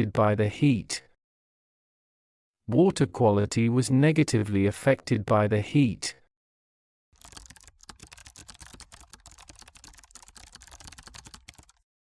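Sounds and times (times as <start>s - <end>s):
fast typing on computer keyboard: 7.2s - 11.9s.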